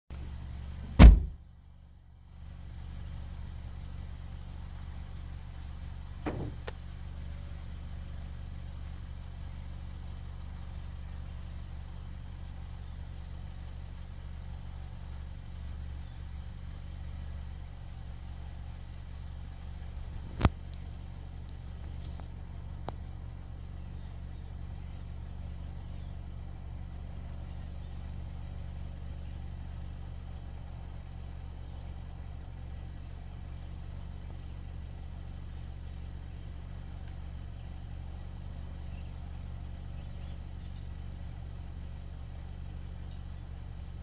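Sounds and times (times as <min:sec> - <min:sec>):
vehicle engine idling: 0:00.1 - 0:44.0
loud knock: 0:01.0 - 0:01.4
faint clicks: 0:20.2 - 0:23.2.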